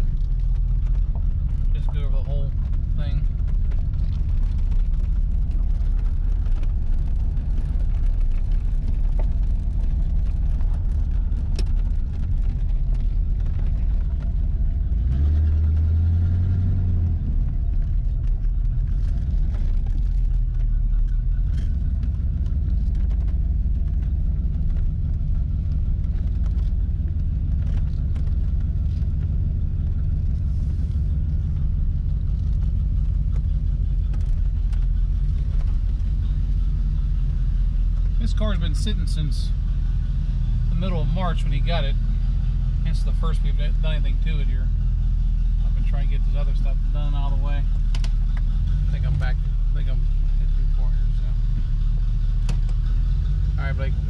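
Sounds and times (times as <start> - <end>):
car engine rumbling through muffler: 0.0 - 54.0.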